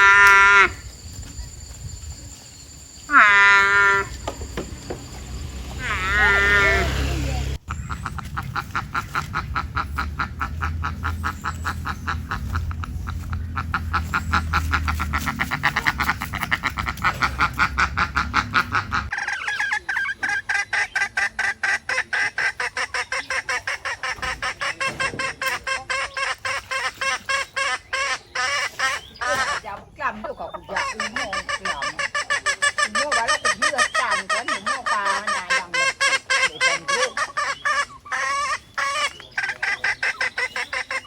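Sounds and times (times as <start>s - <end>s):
waterfowl honking: 0.0s - 0.8s, 3.0s - 41.0s
low rumble: 4.1s - 19.1s.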